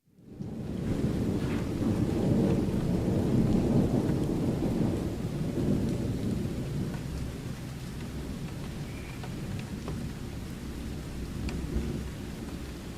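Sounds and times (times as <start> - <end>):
rain falling: 0.2 - 12.9
rolling thunder: 0.4 - 7.4.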